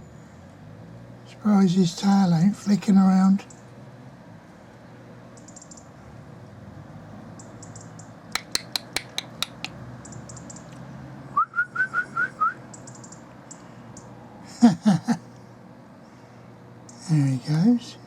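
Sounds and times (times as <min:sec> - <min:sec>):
small birds chirping: 0:05.3 - 0:06.0, 0:07.3 - 0:10.9, 0:12.7 - 0:14.1, 0:16.8 - 0:17.9
sharp clicks: 0:07.6 - 0:10.8
short rising whistles: 0:11.3 - 0:12.6.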